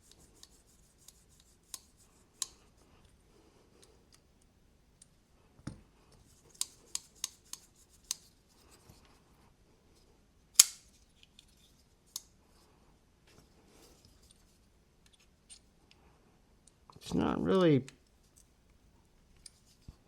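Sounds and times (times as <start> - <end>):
folding knife clicking open and closed: 10.6 - 10.9.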